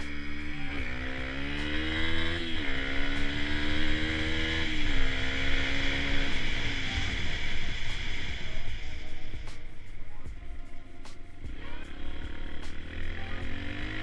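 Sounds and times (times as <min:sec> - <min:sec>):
dirt bike engine accelerating: 0:00.0 - 0:14.0.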